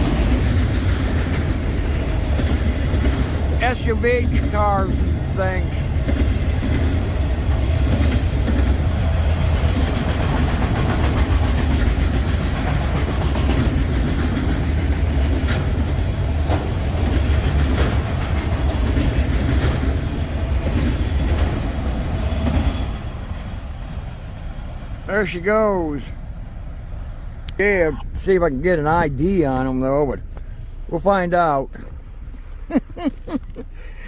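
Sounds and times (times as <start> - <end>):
train wheel clicks on rail joints: 0.0 - 3.6, 5.8 - 21.7
freight train rumbling past: 0.0 - 32.3.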